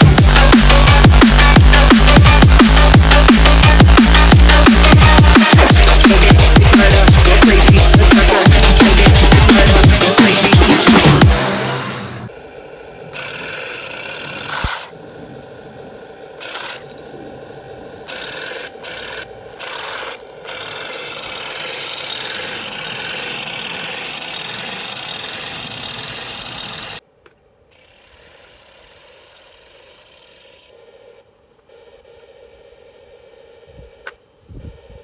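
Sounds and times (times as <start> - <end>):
quiet steady background: 12.2 - 35.0
toy tank tracks clattering: 13.0 - 17.4, 18.0 - 27.0.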